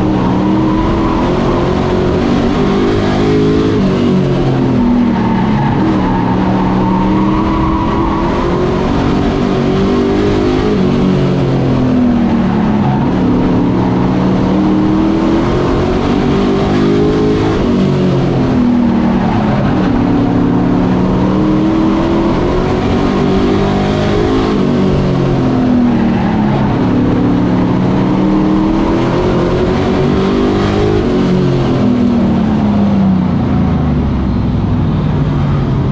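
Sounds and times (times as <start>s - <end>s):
race truck engines running laps: 0.0s - 35.9s.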